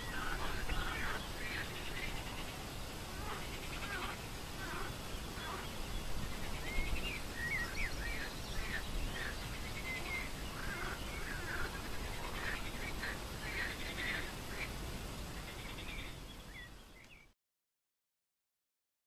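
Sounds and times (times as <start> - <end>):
birds chirping and whistling: 5.1 - 14.2.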